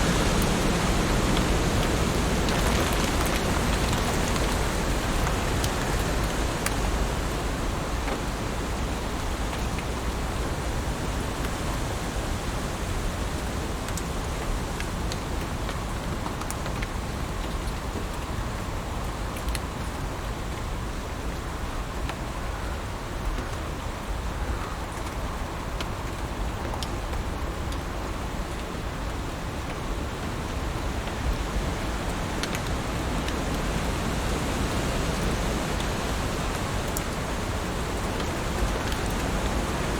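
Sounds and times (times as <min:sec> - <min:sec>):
heavy rain hissing: 0:00.0 - 0:15.1, 0:29.9 - 0:39.9.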